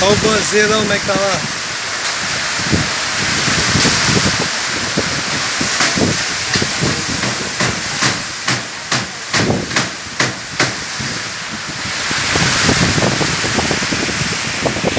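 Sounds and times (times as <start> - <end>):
rough river waves: 0.0 - 14.9
storm wind: 0.0 - 14.9
sharp knocks: 5.8 - 10.8.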